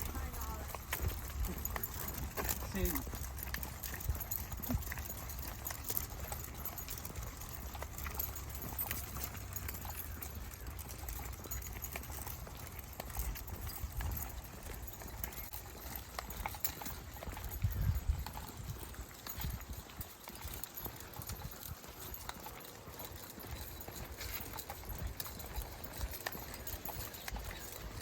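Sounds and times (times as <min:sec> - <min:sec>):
footsteps crunching on trail: 0:00.0 - 0:28.0.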